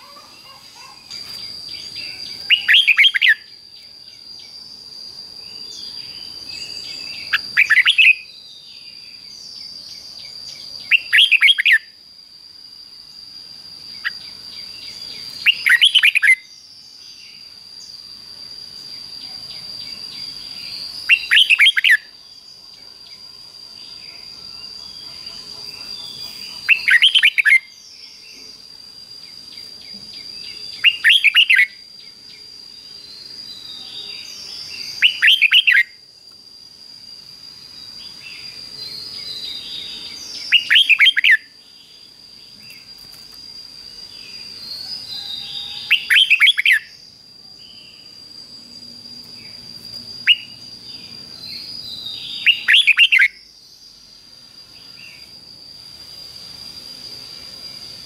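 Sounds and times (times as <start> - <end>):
faint chirps: 0.0 - 58.0
bird song phrase: 29.5 - 35.9.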